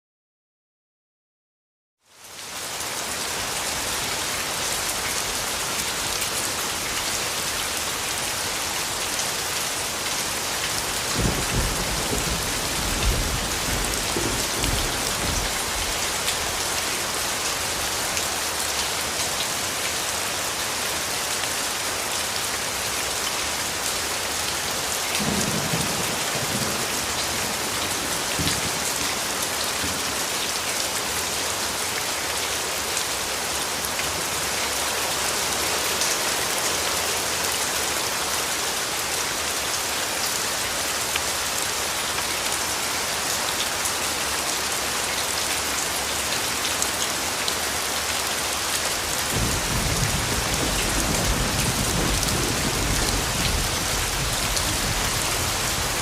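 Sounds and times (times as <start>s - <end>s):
steady rain falling: 2.0s - 56.0s.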